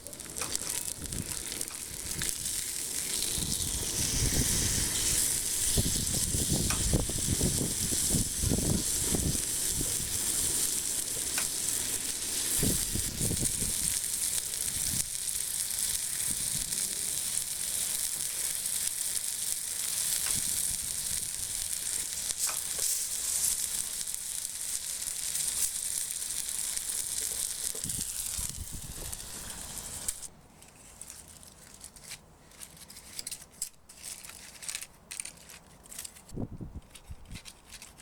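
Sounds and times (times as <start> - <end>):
steak sizzling on iron plate: 0.0 - 30.3
scraping and clicks: 30.0 - 38.0.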